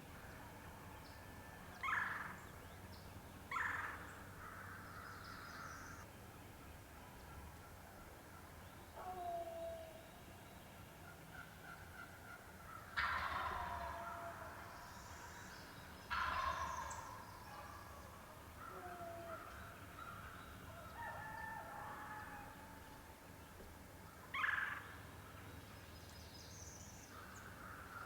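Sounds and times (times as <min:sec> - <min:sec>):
turkey gobbling: 0:13.0 - 0:14.0, 0:16.1 - 0:16.6.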